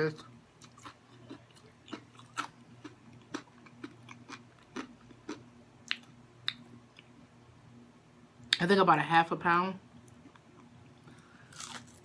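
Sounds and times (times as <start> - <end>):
chewing crispy food: 0.1 - 7.1, 10.1 - 12.0.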